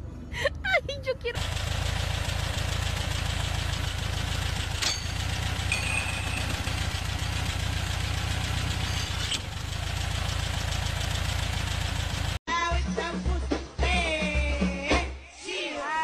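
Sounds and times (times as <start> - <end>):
car engine idling: 1.4 - 12.4.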